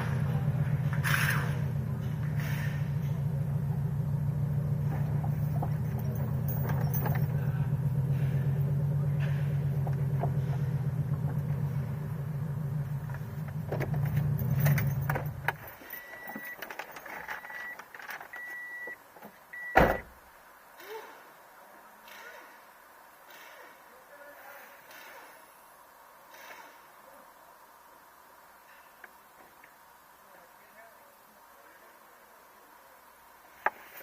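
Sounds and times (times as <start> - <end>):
car engine idling: 0.0 - 20.2
car door shutting: 19.6 - 20.2.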